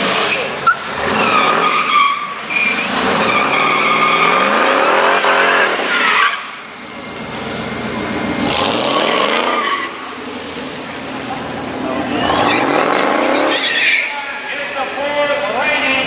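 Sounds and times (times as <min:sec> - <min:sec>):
racing car engines revving: 0:00.0 - 0:16.0
tyres screeching: 0:00.2 - 0:06.7, 0:08.4 - 0:10.4, 0:12.0 - 0:14.7.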